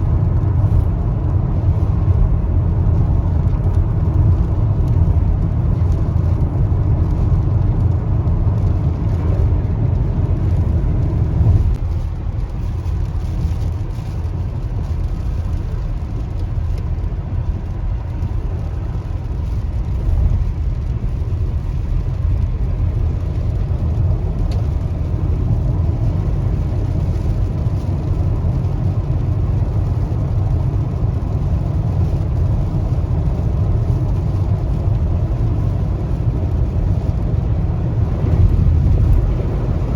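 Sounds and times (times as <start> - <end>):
car interior road rumble: 0.0 - 39.9.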